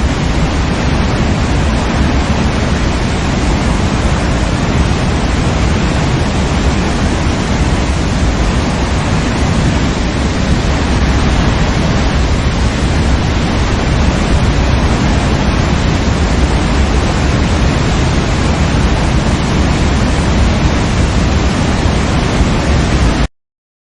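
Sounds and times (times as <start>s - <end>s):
waterfall rushing: 0.0s - 23.3s.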